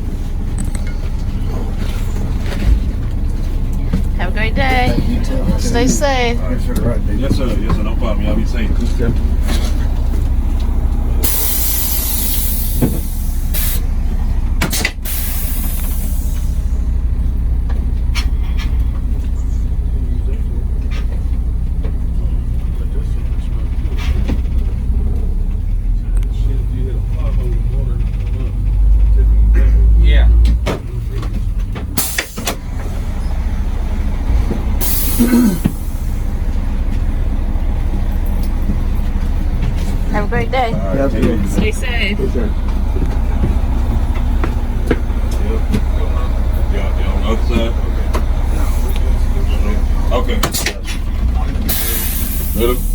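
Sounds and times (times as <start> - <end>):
coach engine idling: 0.0 - 52.9
compressed air hissing: 11.2 - 13.8, 15.0 - 16.7, 34.8 - 36.3, 51.7 - 52.9.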